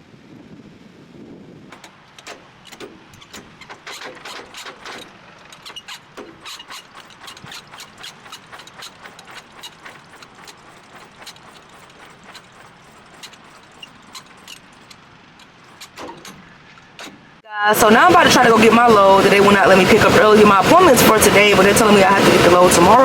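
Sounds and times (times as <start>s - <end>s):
rapid mechanical clicking: 1.7s - 23.0s.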